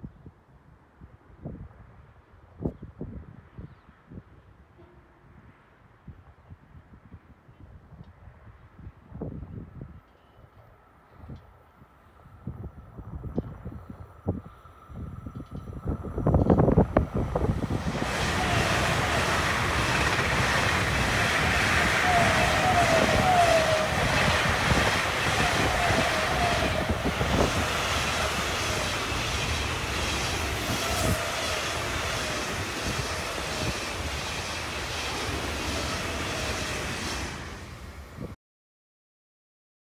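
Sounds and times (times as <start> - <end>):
steel wheels rushing on rail: 12.5 - 38.4.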